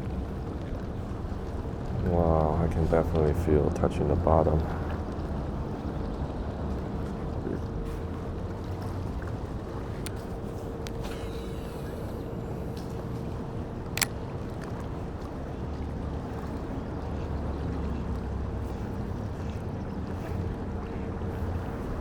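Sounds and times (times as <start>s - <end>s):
wind and water rumble: 0.0s - 22.0s
sharp click: 14.0s - 14.7s.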